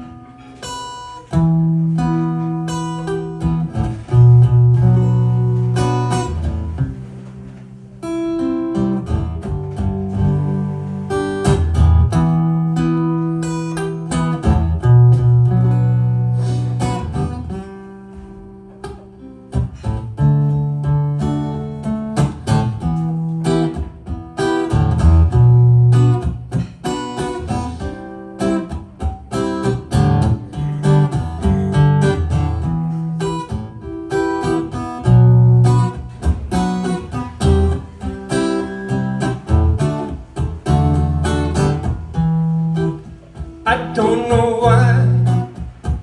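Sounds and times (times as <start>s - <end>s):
acoustic guitar chords: 0.0s - 46.0s.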